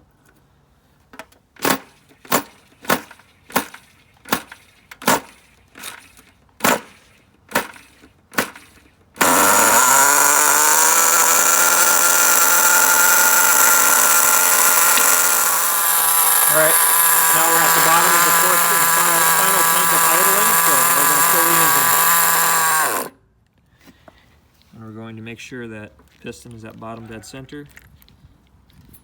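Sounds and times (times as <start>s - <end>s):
starter cranking engine: 1.6s - 23.1s
nitro engine running loudly: 9.2s - 23.1s.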